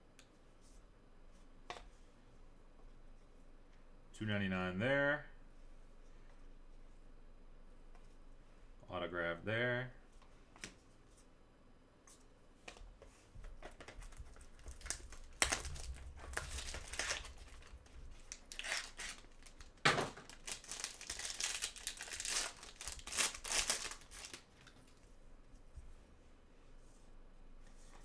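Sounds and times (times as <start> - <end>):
foil wrapper crinkling and tearing: 13.8 - 25.0.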